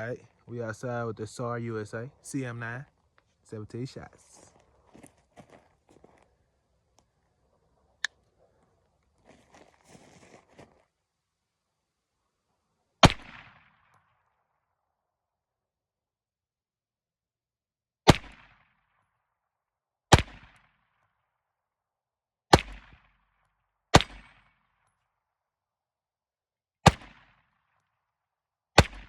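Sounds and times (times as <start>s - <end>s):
pistol shots with echo: 13.0s - 13.8s, 20.1s - 20.6s, 23.9s - 24.6s, 26.9s - 27.4s, 28.8s - 29.0s.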